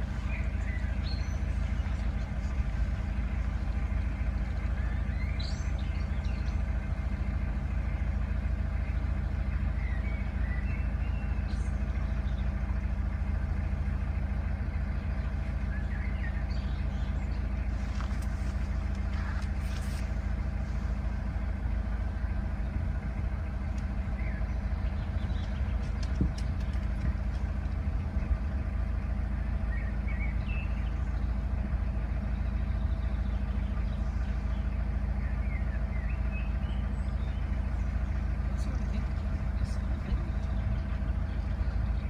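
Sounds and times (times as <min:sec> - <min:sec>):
bird chirps: 0:00.0 - 0:12.6, 0:14.4 - 0:20.1, 0:24.1 - 0:27.0, 0:29.5 - 0:31.5, 0:32.2 - 0:42.0
diesel engine running: 0:00.0 - 0:42.0.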